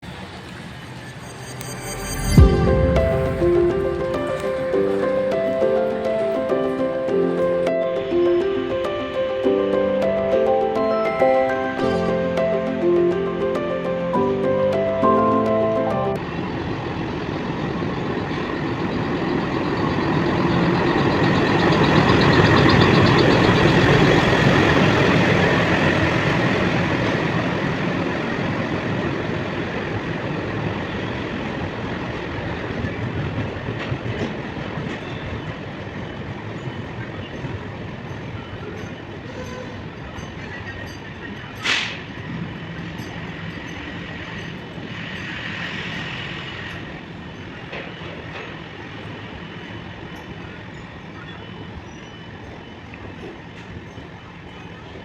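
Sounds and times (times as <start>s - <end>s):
train rumbling: 0.0s - 55.0s
brief sharp high sound: 0.4s - 7.4s.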